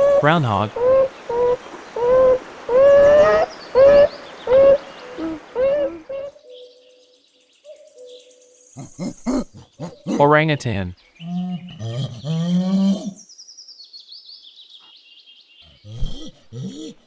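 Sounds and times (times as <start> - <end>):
groundhog calling: 0.0 - 6.3.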